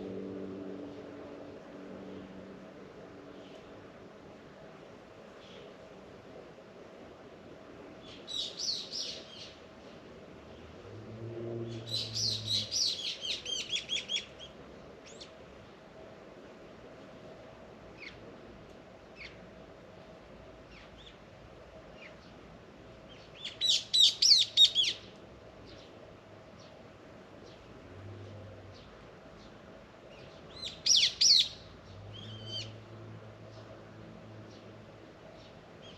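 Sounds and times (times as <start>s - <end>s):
songbird chirping: 11.4s - 15.4s, 28.6s - 32.8s.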